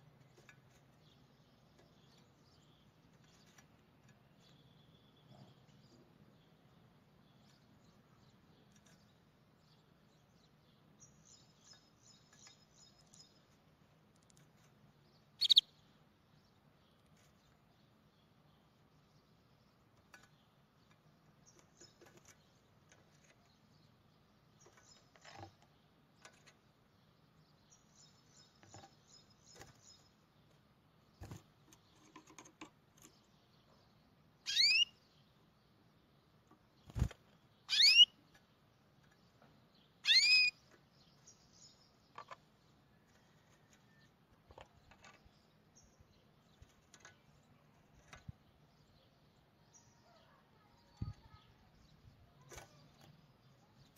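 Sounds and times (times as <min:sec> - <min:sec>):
clicks and rustles of handling: 0:00.0 - 0:04.6, 0:11.7 - 0:14.9, 0:19.9 - 0:23.8, 0:31.2 - 0:33.4, 0:42.0 - 0:45.5, 0:46.4 - 0:48.5
bird chirps rising in pitch: 0:15.4 - 0:15.7, 0:34.5 - 0:34.9, 0:37.7 - 0:38.1, 0:40.0 - 0:40.6.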